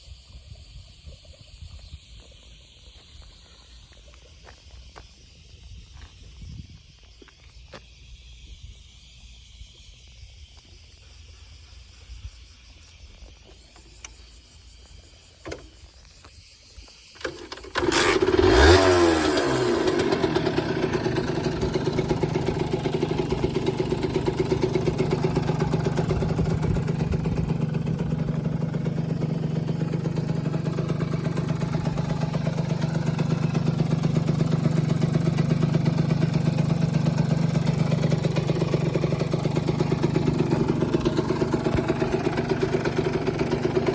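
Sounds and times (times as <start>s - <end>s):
motorcycle engine starting and idling: 12.8s - 16.3s, 17.0s - 43.9s.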